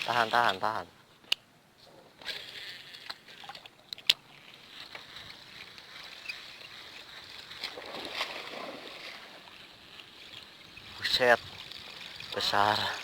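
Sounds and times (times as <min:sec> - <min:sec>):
water sloshing and lapping: 0:03.0 - 0:13.0.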